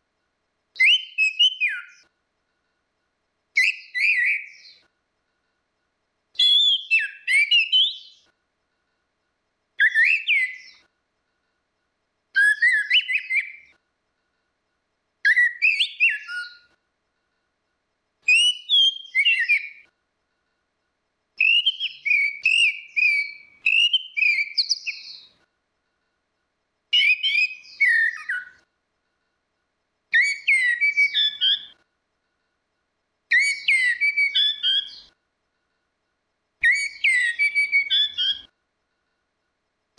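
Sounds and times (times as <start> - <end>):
thrush singing whistled phrases: 0.8 - 2.1, 3.6 - 4.9, 6.4 - 8.3, 9.8 - 10.9, 12.4 - 13.8, 15.2 - 16.8, 18.3 - 19.9, 21.4 - 25.4, 26.9 - 28.7, 30.1 - 31.8, 33.3 - 35.2, 36.6 - 38.6.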